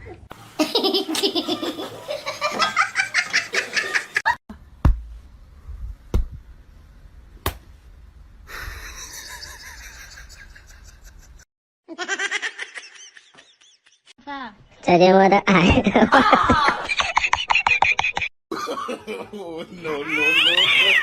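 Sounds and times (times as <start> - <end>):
person laughing hard: 8.6 - 11.4.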